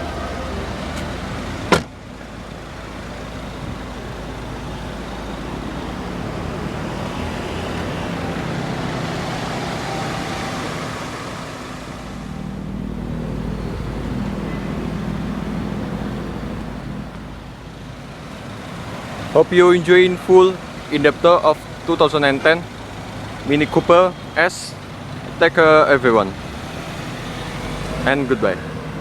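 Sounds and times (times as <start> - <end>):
motor vehicle rumble: 0.0 - 29.0
sharp thump: 1.7 - 2.0.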